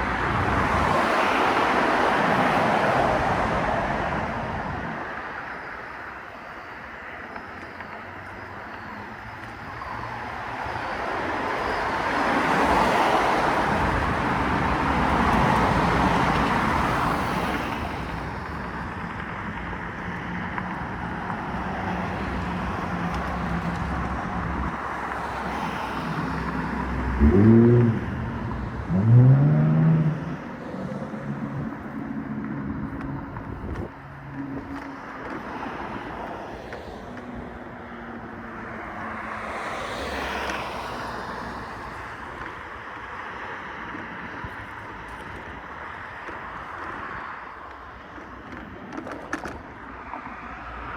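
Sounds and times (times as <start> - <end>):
low engine hum: 13.6 - 34.9
vehicle passing: 22.2 - 34.4.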